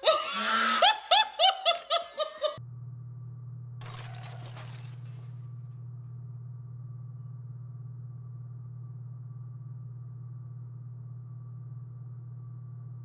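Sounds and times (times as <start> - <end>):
person laughing: 0.0 - 2.6
steady low hum: 0.8 - 13.0
glass crashing and shattering: 3.8 - 5.1.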